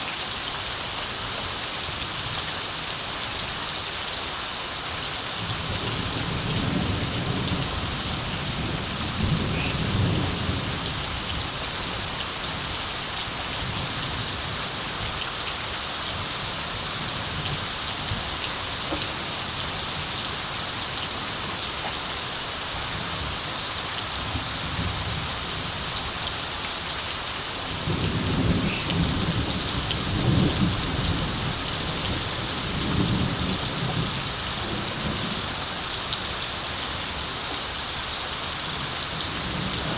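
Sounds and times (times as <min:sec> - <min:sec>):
steady rain falling: 0:00.0 - 0:39.9
distant thunder rumbling: 0:06.0 - 0:12.0, 0:27.8 - 0:34.2.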